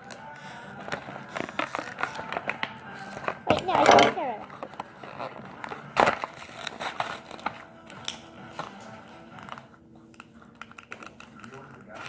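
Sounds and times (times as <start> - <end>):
plastic toy clicking and knocking: 3.5 - 4.3.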